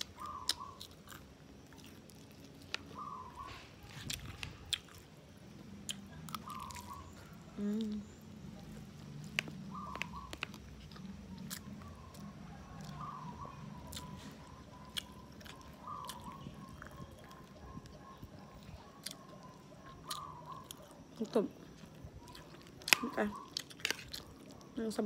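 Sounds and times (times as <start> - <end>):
person chewing food: 0.0 - 24.8
person humming: 7.5 - 8.1.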